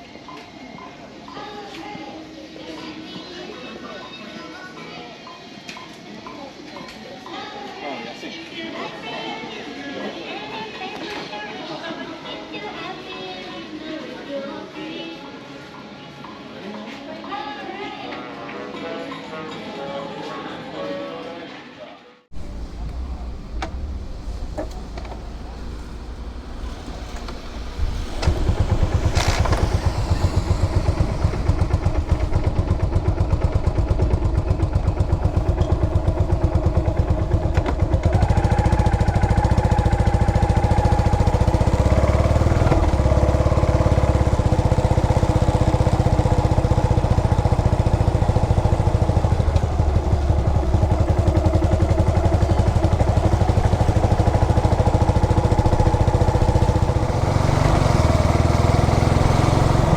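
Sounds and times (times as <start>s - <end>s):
steady tone: 22.3s - 37.6s
motorcycle engine running: 22.3s - 59.9s.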